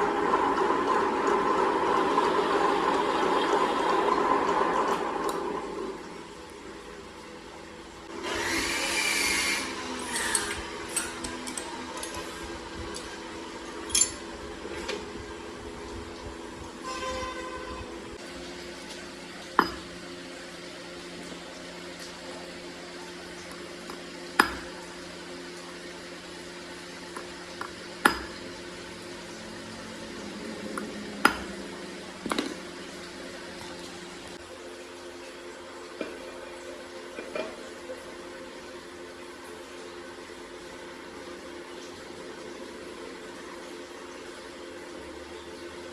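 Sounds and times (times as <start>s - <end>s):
steady machine hum: 0.0s - 45.9s
tool rasping scrape: 8.2s - 11.2s.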